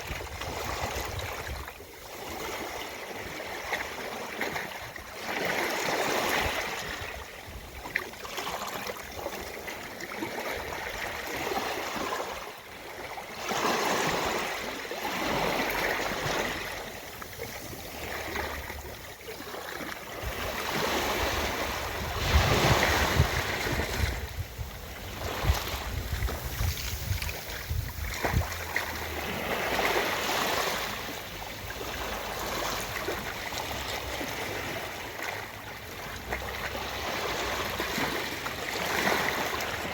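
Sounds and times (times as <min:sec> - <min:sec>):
ocean waves washing onto beach: 0:00.0 - 0:39.9.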